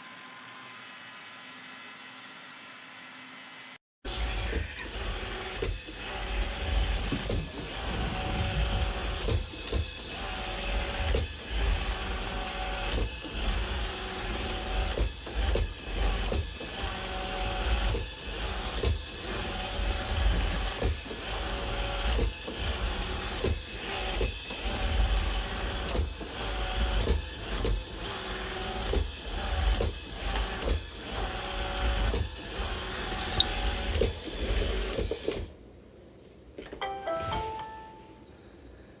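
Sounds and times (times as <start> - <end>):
robot vacuum running: 4.1 - 14.8.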